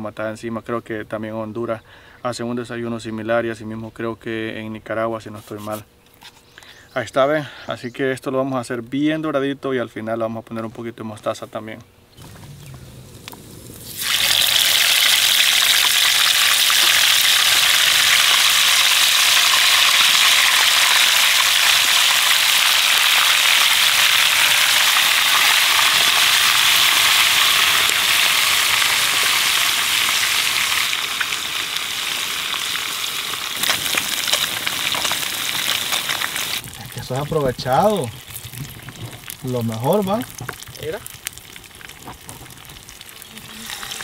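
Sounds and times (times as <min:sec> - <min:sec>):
oil crackles: 0:12.1 - 0:44.0
fish sizzling in hot oil: 0:13.1 - 0:44.0.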